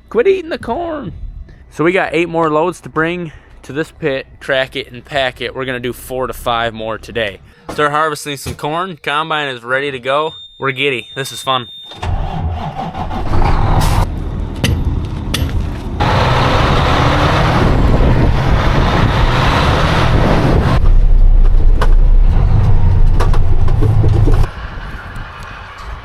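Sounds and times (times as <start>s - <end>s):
heavy vehicle engine rumbling: 12.0s - 26.0s
loud rushing noise: 16.0s - 26.0s.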